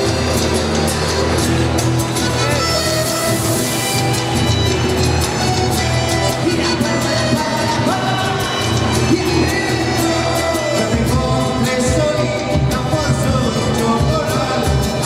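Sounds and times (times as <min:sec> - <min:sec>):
live band playing: 0:00.0 - 0:15.0
person singing: 0:05.7 - 0:15.0.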